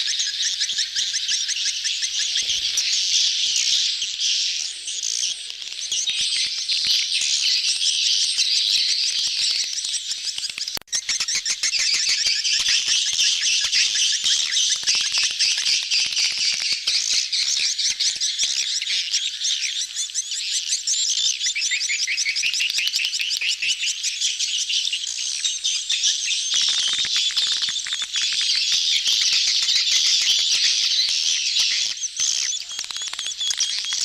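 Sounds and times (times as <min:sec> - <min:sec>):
swiftlets twittering: 0:26.0 - 0:34.0.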